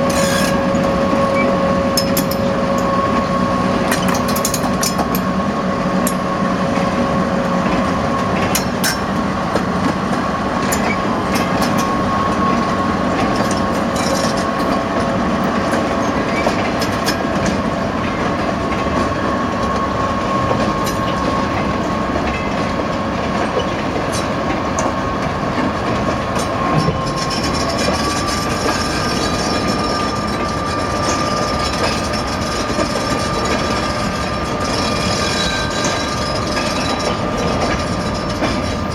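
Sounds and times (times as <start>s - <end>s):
train rumble: 0.0s - 38.9s
train wheels clacking over rail joints: 0.0s - 38.9s.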